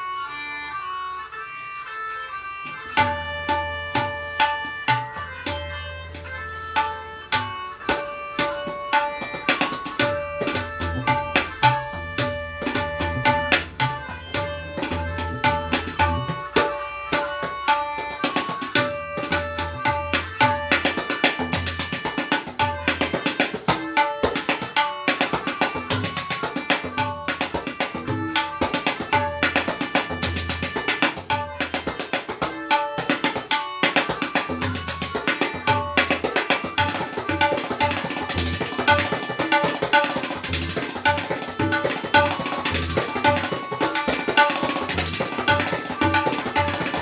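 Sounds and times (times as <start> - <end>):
melodic accompaniment of held notes: 0.0 - 47.0
tabla strokes: 2.1 - 47.0.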